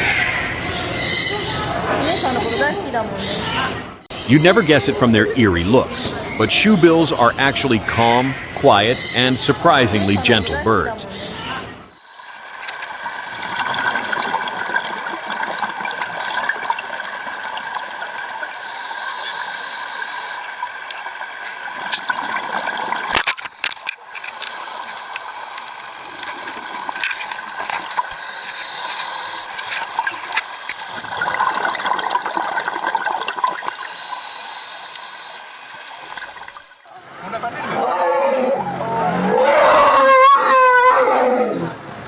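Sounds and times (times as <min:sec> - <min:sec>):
water trickling and gurgling: 0:11.9 - 0:36.9.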